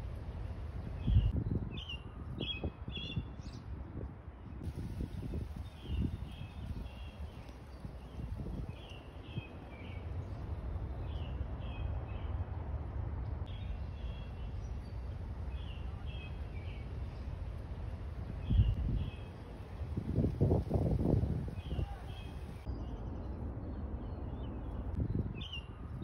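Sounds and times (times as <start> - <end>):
songbird chirping: 20.5 - 23.4.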